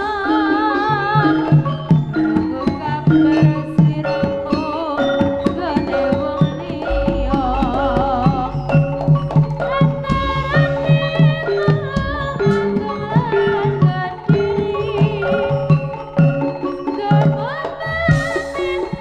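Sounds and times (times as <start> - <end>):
ringing metal gamelan notes: 0.0 - 19.0
wavering held melody: 0.0 - 19.0
hand drums beating quick rhythm: 1.0 - 19.0
deep low hum: 6.9 - 11.4.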